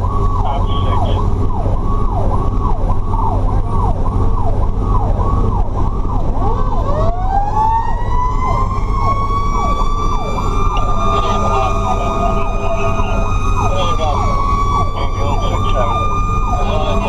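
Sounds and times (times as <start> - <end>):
electronic siren yelping: 0.0 - 17.0
low engine drone: 0.0 - 17.0
mechanical siren howling: 0.0 - 17.0.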